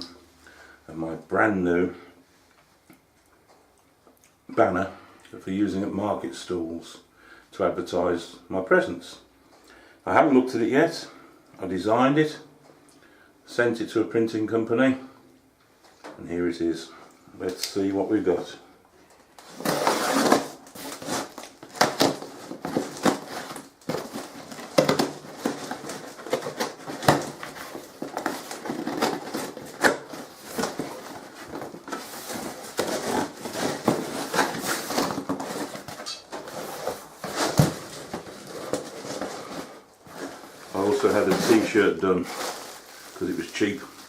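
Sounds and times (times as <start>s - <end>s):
cardboard and packaging rustling: 19.1s - 44.0s.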